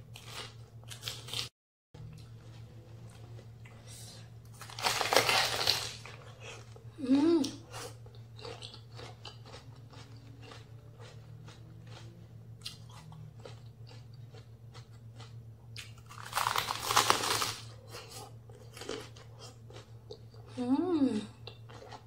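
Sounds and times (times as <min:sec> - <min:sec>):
loud crunching bite: 0:04.6 - 0:06.2, 0:08.4 - 0:17.7
chewing with wet crunches: 0:07.7 - 0:20.5, 0:21.4 - 0:22.0.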